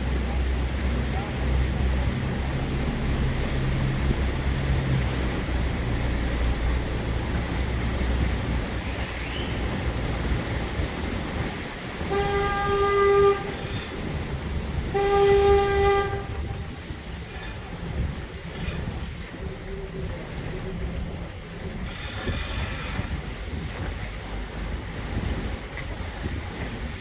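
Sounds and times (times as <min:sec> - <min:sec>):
boat engine humming: 0:00.0 - 0:27.0
boat horn blasts: 0:11.9 - 0:19.0.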